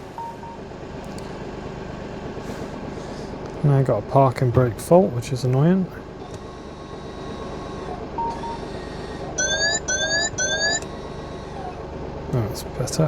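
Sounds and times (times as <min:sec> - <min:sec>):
dashboard warning beeps: 0:00.0 - 0:00.8, 0:07.0 - 0:11.8.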